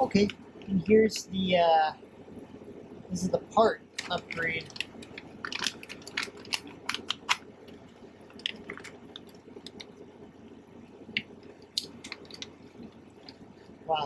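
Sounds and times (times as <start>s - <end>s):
plastic bags crinkling: 4.0s - 7.5s, 8.2s - 9.9s, 11.8s - 13.4s.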